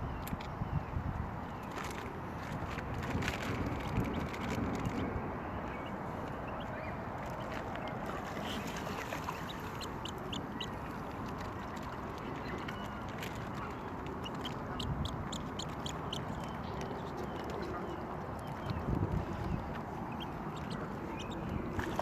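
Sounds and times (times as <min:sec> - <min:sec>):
outdoor background noise: 0:00.0 - 0:22.0
high-pitched waterbird calls: 0:08.4 - 0:11.0, 0:14.1 - 0:17.2, 0:17.9 - 0:22.0
ducks quacking: 0:14.2 - 0:16.3.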